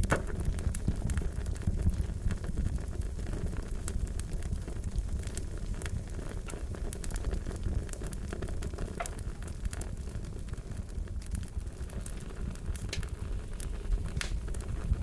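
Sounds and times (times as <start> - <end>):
low rumble of flame: 0.0 - 15.0
wood fire crackling: 0.0 - 15.0.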